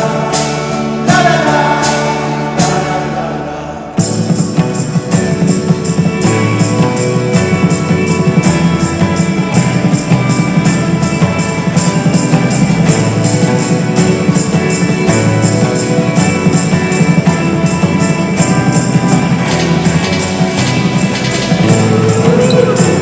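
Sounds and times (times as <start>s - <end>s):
rock band playing: 0.0s - 23.0s
tambourine jangling: 4.0s - 23.0s.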